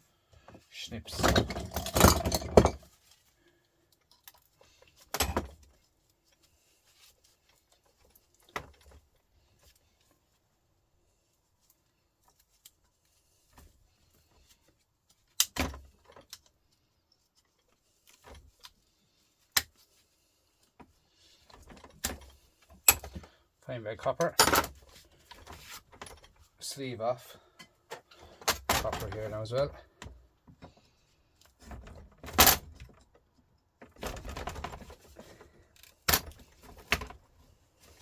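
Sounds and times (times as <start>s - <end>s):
metal clinks and knocks: 1.2s - 3.0s.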